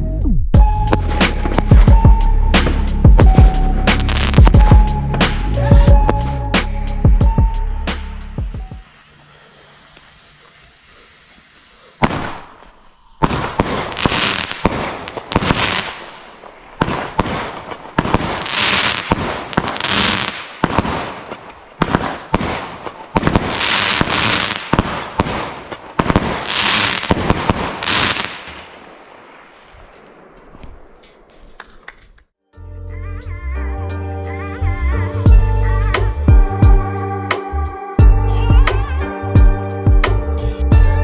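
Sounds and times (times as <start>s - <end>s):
firework battery firing: 0.6s - 32.1s.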